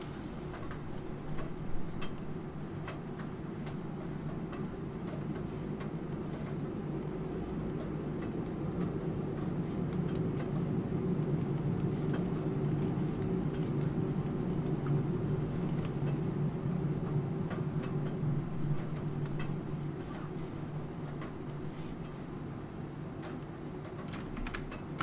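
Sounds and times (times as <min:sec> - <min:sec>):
steady rain: 0:00.0 - 0:25.0
computer keyboard typing: 0:23.2 - 0:25.0.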